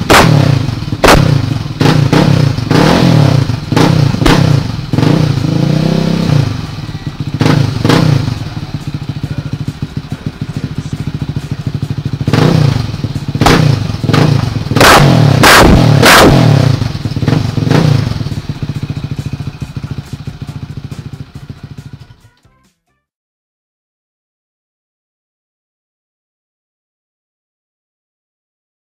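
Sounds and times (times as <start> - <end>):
engine throttle blips: 0.0 - 22.4
quad engine idling: 0.0 - 22.4.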